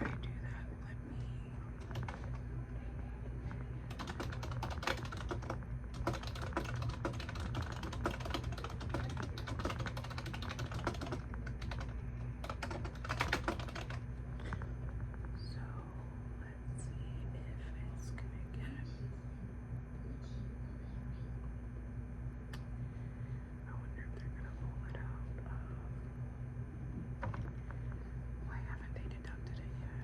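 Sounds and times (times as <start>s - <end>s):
steady low hum: 0.0s - 30.0s
typing on computer keyboard: 1.8s - 2.4s, 3.9s - 14.0s.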